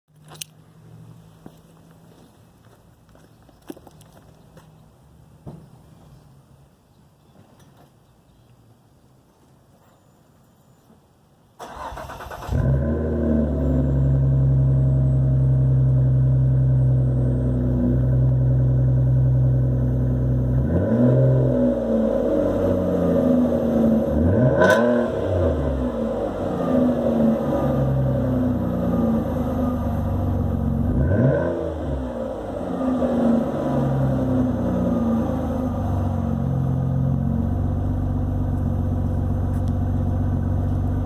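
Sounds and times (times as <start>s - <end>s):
car engine idling: 25.2s - 31.2s, 31.8s - 41.0s.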